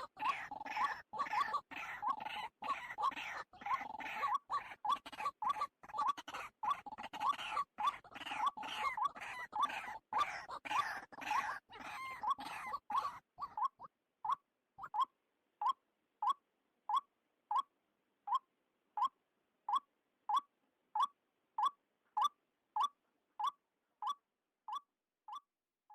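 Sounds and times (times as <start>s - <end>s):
waterhen calling: 0.0s - 16.4s
other bird calling: 0.0s - 17.7s.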